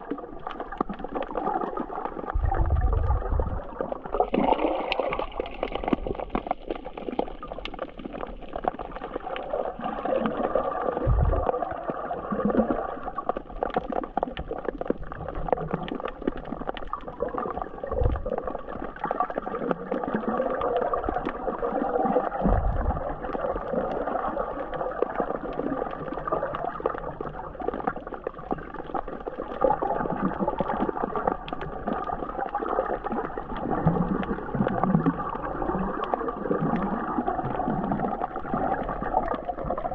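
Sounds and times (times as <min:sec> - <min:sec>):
muffled underwater gurgling: 0:00.0 - 0:39.9
dull low thumps: 0:02.4 - 0:03.6, 0:11.0 - 0:11.4.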